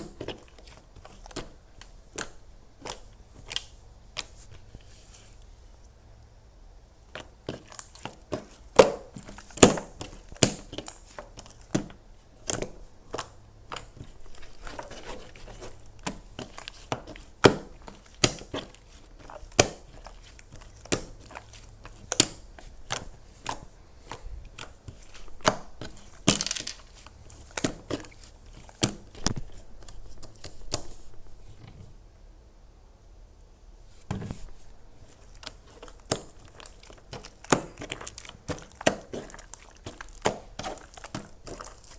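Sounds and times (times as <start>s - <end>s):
brittle material crunching and crackling: 12.5s - 30.8s, 35.0s - 41.9s.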